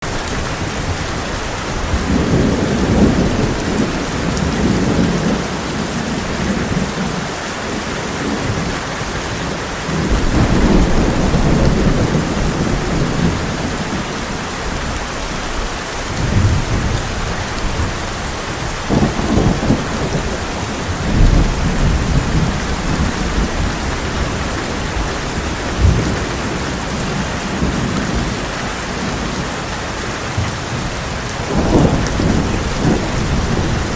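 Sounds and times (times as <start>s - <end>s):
thunder rumbling: 0.0s - 24.3s, 31.4s - 33.9s
heavy rain on a tin roof: 0.0s - 33.9s.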